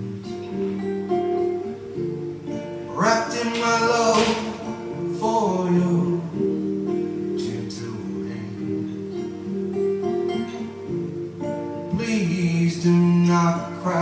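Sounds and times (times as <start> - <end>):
acoustic guitar strumming: 0.0 - 14.0
person singing: 2.9 - 10.3, 11.8 - 14.0.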